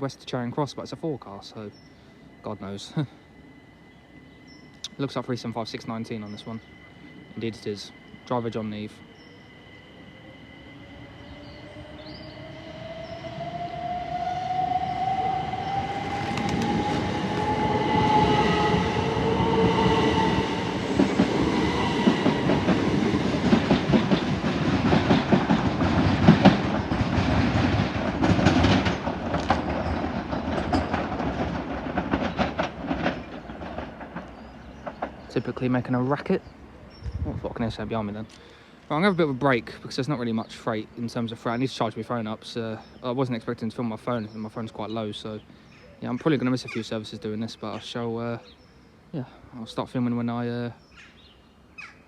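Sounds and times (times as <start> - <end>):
train traction motor whine: 6.0 - 28.3
train wheels clattering: 15.8 - 35.7.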